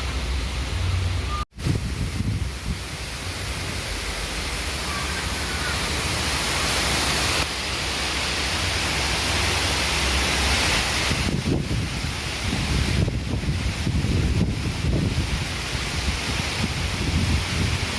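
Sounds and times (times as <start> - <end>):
strong wind blowing: 0.0 - 7.4, 10.9 - 17.9
wind buffeting microphone: 1.1 - 3.5, 11.0 - 17.9.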